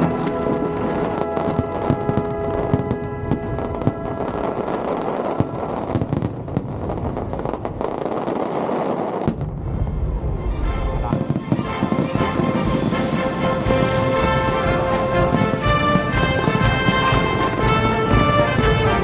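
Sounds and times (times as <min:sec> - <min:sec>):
show music with low booms: 0:00.0 - 0:04.1, 0:09.4 - 0:19.0
fireworks crackling bursts: 0:00.0 - 0:10.1, 0:11.0 - 0:19.0.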